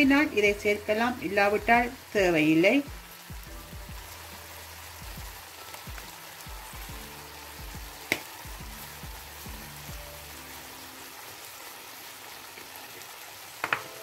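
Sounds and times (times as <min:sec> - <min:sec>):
okra sizzling in a pan: 0:00.0 - 0:14.0.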